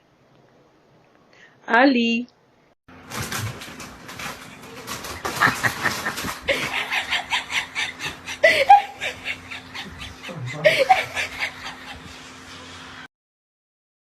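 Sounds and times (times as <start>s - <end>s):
person laughing breathily: 5.2s - 12.8s.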